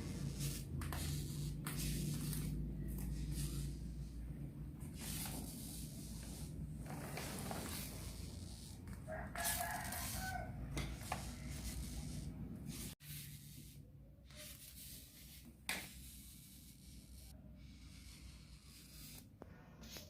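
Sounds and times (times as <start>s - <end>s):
rooster crowing: 9.0s - 10.8s.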